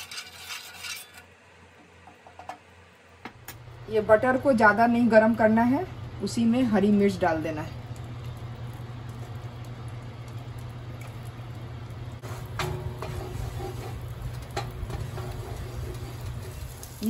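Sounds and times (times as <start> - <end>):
chillies sizzling in butter: 4.2 - 17.0
wooden spoon stirring: 12.2 - 17.0.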